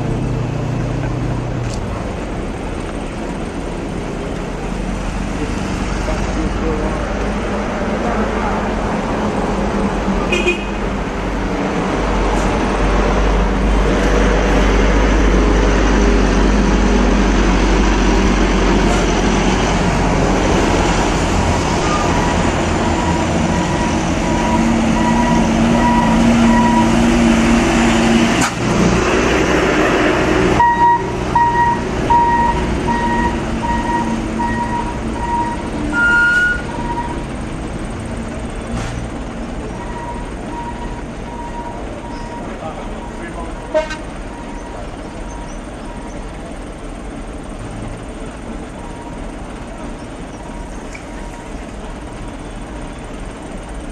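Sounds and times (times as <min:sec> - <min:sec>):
heavy truck engine rumbling: 0:00.0 - 0:53.9
road noise: 0:00.0 - 0:53.9
short high beeps: 0:30.6 - 0:37.2.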